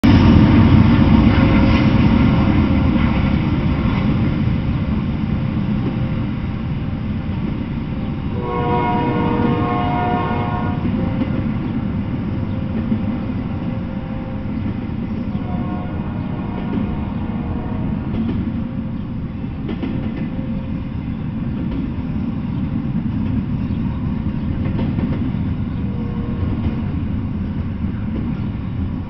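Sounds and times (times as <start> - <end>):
freight train rumbling past: 0.0 - 29.0
train horn: 8.3 - 11.6, 12.4 - 18.4, 25.8 - 27.0.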